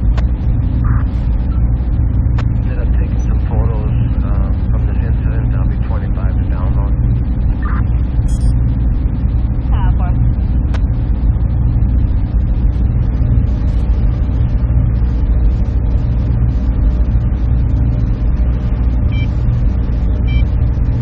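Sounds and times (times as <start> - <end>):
server machinery humming: 0.0 - 21.0
brief high-pitched tones: 8.2 - 8.5.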